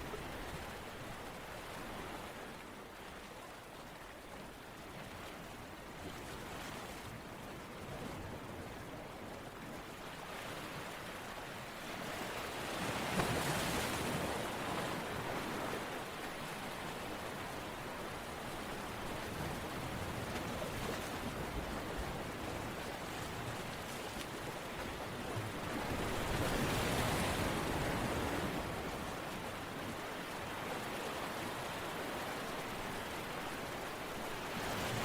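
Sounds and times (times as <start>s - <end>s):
rushing water: 21.0s - 35.0s.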